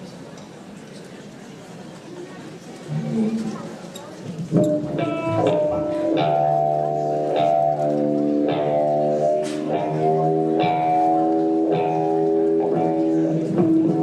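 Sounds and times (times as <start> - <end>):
guitar playing slow chords: 4.6 - 14.0.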